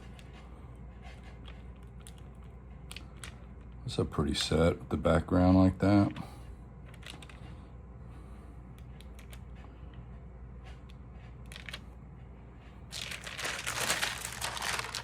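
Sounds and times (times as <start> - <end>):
album pages crinkling: 12.9 - 15.0.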